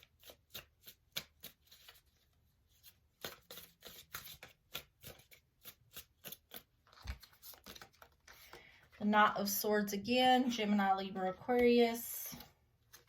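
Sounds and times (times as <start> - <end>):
cards being shuffled: 0.0 - 9.0.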